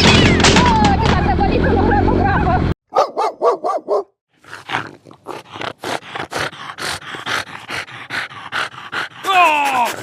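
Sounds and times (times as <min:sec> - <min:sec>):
dog panting: 0:04.4 - 0:10.0.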